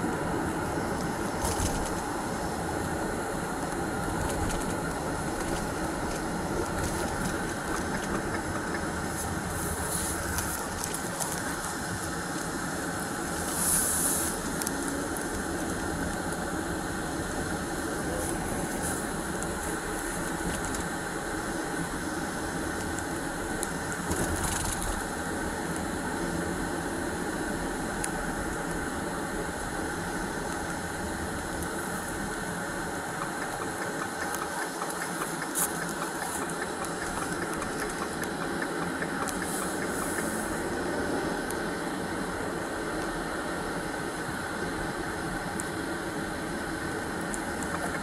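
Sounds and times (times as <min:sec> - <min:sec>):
road and cabin noise: 0:00.0 - 0:48.0
vehicle engine running: 0:03.5 - 0:12.5
faint ticks and rattles: 0:30.4 - 0:40.7.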